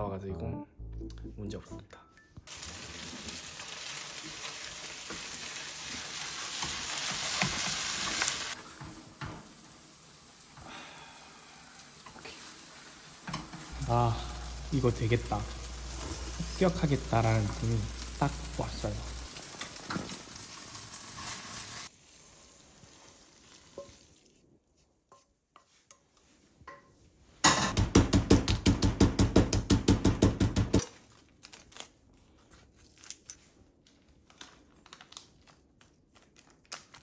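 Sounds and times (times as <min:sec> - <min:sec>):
food sizzling in a pan: 0:02.5 - 0:24.4
utensils clinking: 0:13.3 - 0:21.0.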